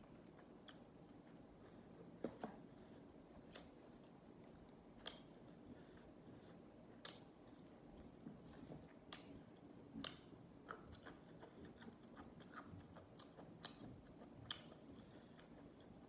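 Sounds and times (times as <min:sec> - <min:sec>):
chewing raw vegetables: 0:00.0 - 0:16.0.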